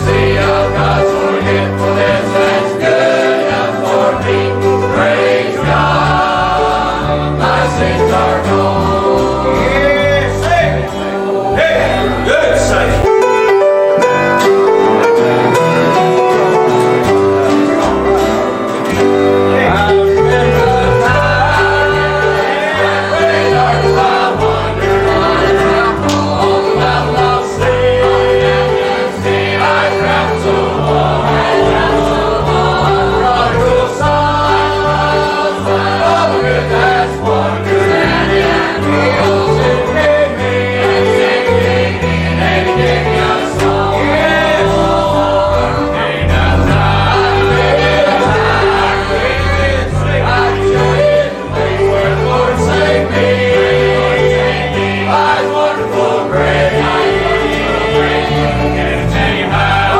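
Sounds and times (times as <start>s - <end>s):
instrumental accompaniment: 0.0s - 59.9s
voices singing gospel song: 0.0s - 59.9s
bass line: 5.7s - 13.1s, 42.0s - 54.6s.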